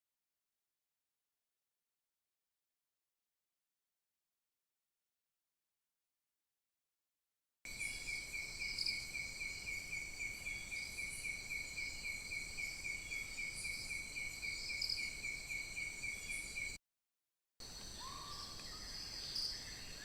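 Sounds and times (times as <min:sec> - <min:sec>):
insects chirping: 0:07.7 - 0:16.8, 0:17.6 - 0:20.0.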